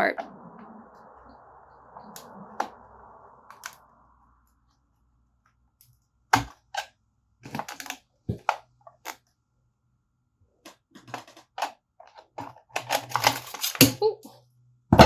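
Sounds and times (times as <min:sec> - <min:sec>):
plastic housing cracking and clicking: 0:10.7 - 0:14.0.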